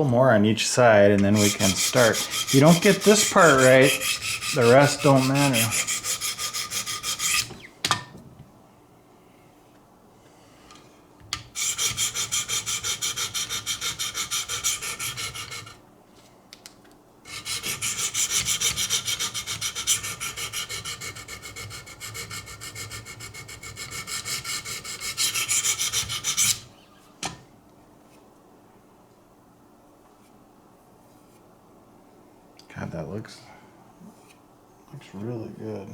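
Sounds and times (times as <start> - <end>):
stones rasping on knife edge: 1.3 - 7.6.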